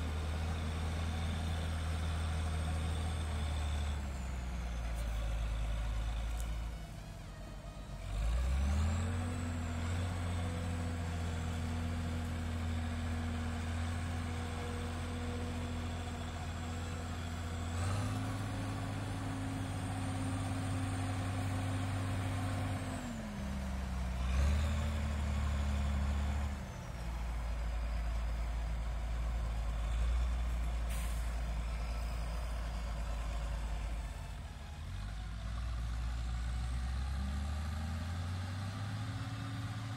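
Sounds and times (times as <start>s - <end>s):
tractor diesel engine revving: 8.0s - 39.9s.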